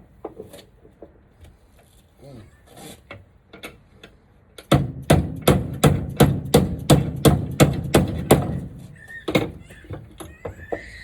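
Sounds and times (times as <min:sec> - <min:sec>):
hammer knocking on wood: 0:04.7 - 0:08.6.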